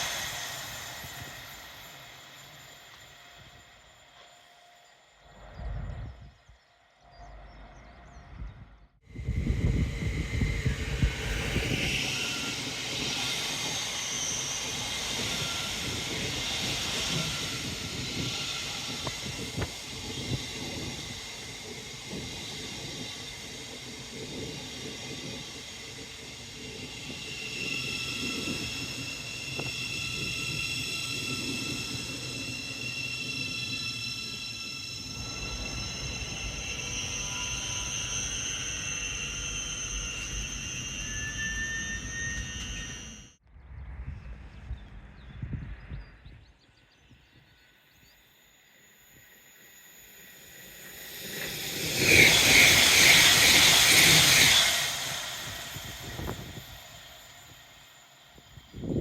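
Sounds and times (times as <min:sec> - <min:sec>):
high steady whine tones: 0:00.0 - 0:59.0
train wheels rumbling on rail: 0:05.2 - 0:43.4, 0:50.8 - 0:59.0.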